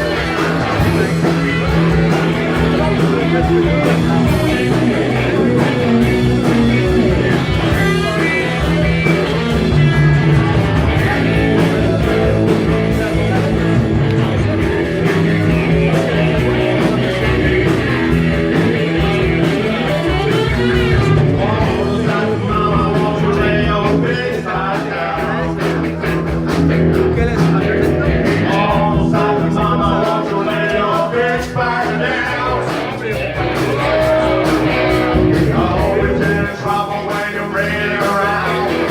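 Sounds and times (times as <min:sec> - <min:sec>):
electric guitar: 0:00.0 - 0:38.9
live rock band playing: 0:00.0 - 0:38.9.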